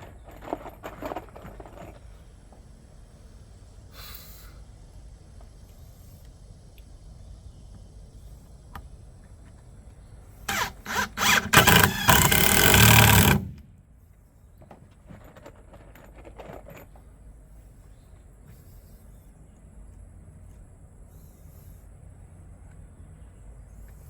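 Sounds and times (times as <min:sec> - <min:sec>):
power tool on wood: 0:10.5 - 0:13.7.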